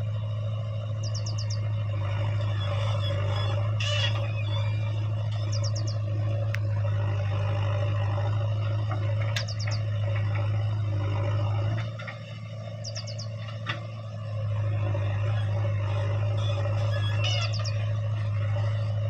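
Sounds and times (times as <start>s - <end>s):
small bird chirping: 1.0s - 1.7s, 5.4s - 6.0s, 9.4s - 9.9s, 12.8s - 13.4s, 17.1s - 17.8s.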